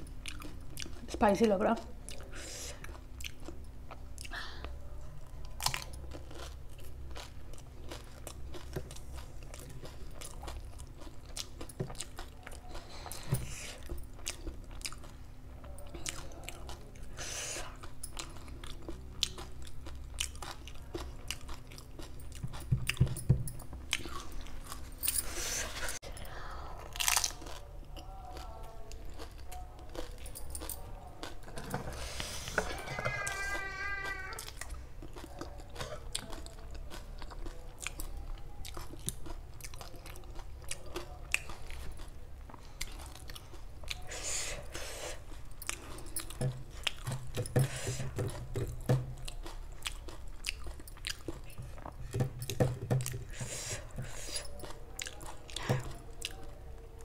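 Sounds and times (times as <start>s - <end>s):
wet chewing: 5.5s - 23.2s, 26.8s - 56.6s
crunching bites of fried shells: 26.9s - 30.4s.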